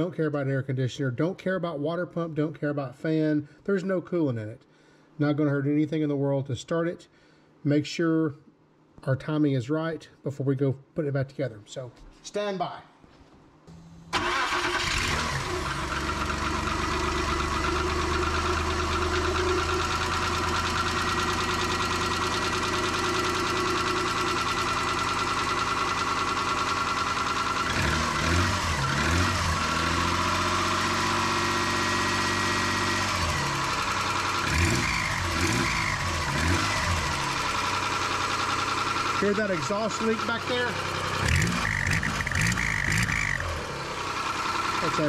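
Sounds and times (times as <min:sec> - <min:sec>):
car engine starting and idling: 0:13.7 - 0:45.0.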